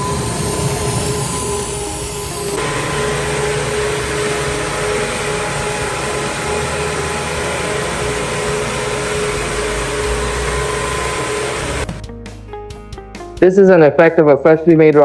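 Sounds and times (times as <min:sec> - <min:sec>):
machining center running with whine: 0:00.0 - 0:12.0.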